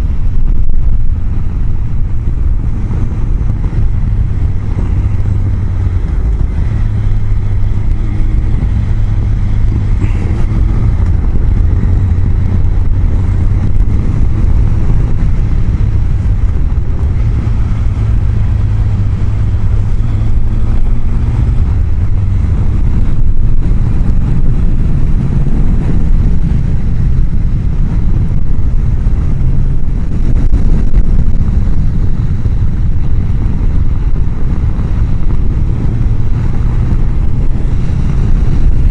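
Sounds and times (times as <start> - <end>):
motorcycle engine humming: 0.0 - 38.9
wind rushing through helmet vent: 0.0 - 38.9.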